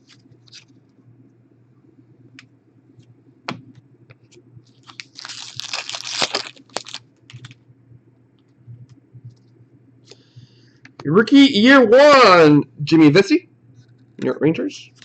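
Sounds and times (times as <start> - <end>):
trading cards being handled: 4.2 - 7.6
packaging crinkling: 4.7 - 7.6.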